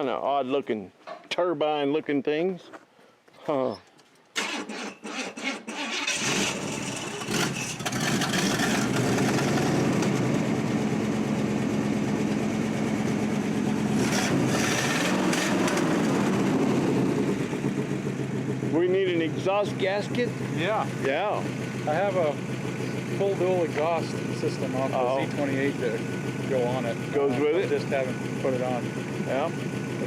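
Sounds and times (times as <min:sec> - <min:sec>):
starter motor cranking: 0:04.4 - 0:10.2, 0:13.9 - 0:17.3
car engine idling: 0:06.2 - 0:30.0.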